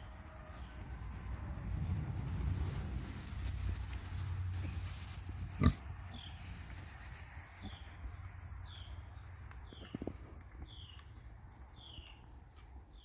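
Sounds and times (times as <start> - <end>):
pigs grunting: 5.4 - 6.2.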